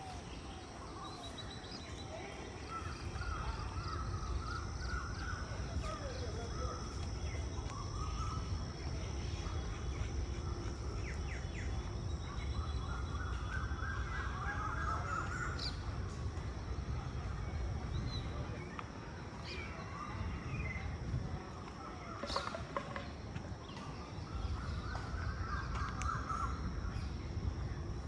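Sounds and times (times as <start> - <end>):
birds chirping and calling: 0.0 - 15.9.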